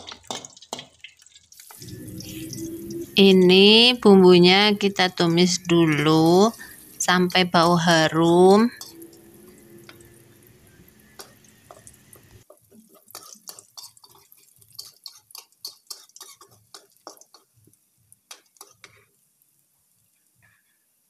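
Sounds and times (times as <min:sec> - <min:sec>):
paste frying with crackles and pops: 0:00.0 - 0:21.0
metal spatula scraping pan: 0:08.6 - 0:11.9, 0:12.9 - 0:17.4.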